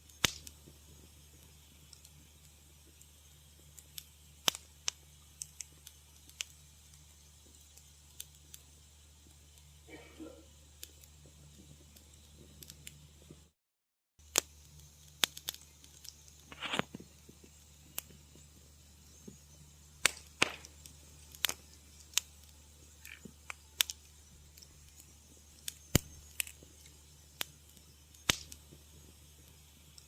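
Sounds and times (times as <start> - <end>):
wood fire crackling: 0.0 - 13.6, 14.2 - 30.0
faint low hum: 0.6 - 13.5.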